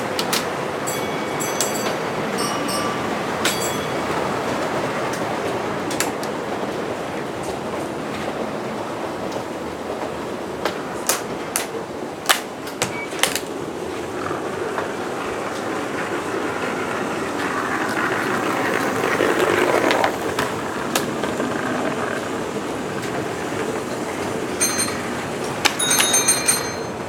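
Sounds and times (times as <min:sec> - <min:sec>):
model train rolling on track: 0:00.0 - 0:27.0.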